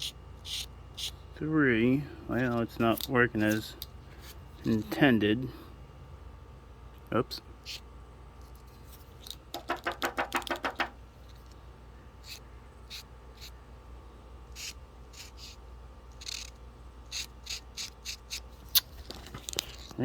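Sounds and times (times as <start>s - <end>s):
marker tip scratching: 0.0s - 1.2s, 12.2s - 13.6s, 14.5s - 15.6s, 16.2s - 18.9s
paint marker mixing ball rattling: 9.5s - 11.0s.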